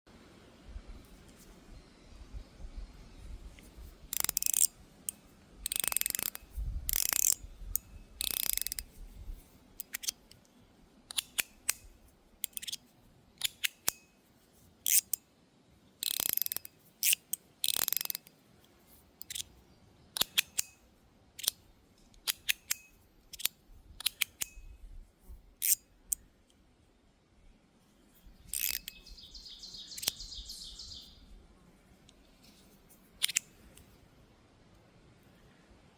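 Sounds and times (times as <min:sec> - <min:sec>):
metal slider clicking: 0:04.1 - 0:09.0, 0:09.8 - 0:10.4, 0:11.1 - 0:12.8, 0:13.4 - 0:14.1, 0:14.8 - 0:15.2, 0:16.0 - 0:18.3, 0:19.2 - 0:19.5, 0:20.2 - 0:20.8, 0:21.4 - 0:21.6, 0:22.2 - 0:24.7, 0:25.6 - 0:26.2, 0:28.4 - 0:29.2, 0:30.0 - 0:30.3, 0:33.2 - 0:33.9.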